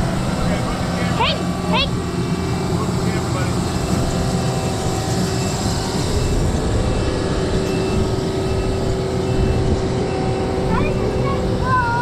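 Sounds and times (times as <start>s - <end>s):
construction machine engine running: 0.0s - 12.0s.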